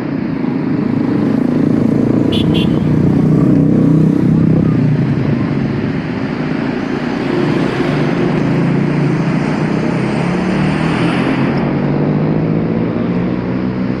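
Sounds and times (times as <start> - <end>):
road noise: 0.0 - 14.0
vehicle engine running: 0.4 - 7.6.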